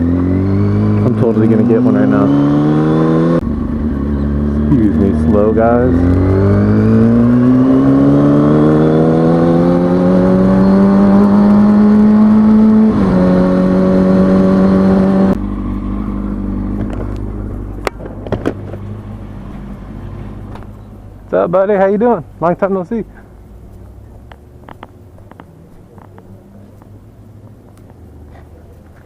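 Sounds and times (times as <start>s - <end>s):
motorcycle engine revving: 0.0s - 21.3s.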